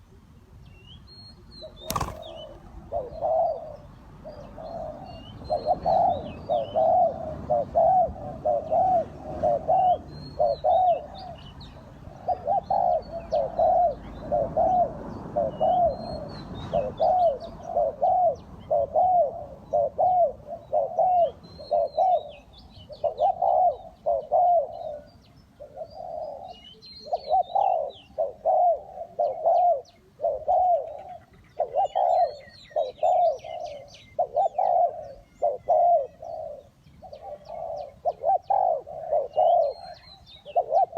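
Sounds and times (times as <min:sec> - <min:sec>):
small birds chirping: 0:00.0 - 0:06.8, 0:21.7 - 0:40.9
dove cooing: 0:01.6 - 0:40.9.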